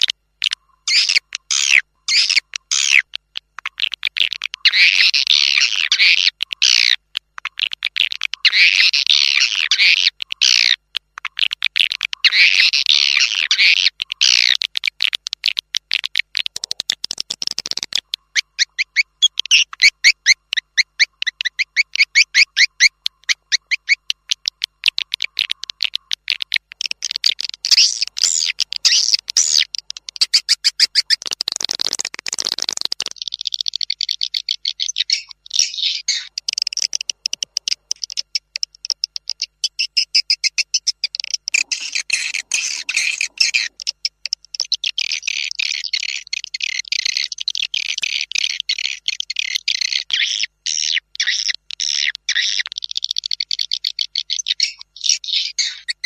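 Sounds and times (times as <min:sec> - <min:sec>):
swiftlets chirping and twittering: 0:00.8 - 0:03.0, 0:16.7 - 0:56.0.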